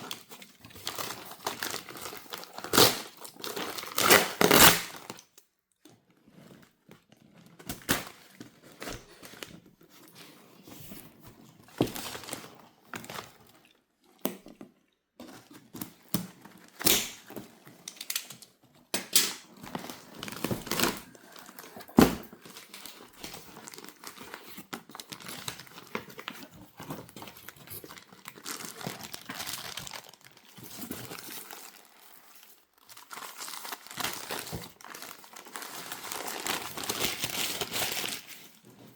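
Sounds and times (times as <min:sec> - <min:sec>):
crinkling of wrapping: 0:00.0 - 0:14.6, 0:15.2 - 0:38.9
packaging tearing: 0:00.8 - 0:05.2, 0:27.1 - 0:32.2, 0:32.8 - 0:38.5.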